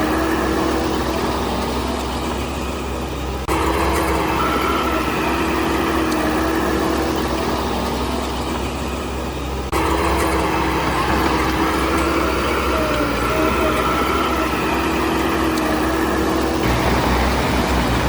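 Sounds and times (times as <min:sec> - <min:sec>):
heavy diesel engine rumbling: 0:00.0 - 0:18.0
steady machine whine: 0:00.0 - 0:18.0.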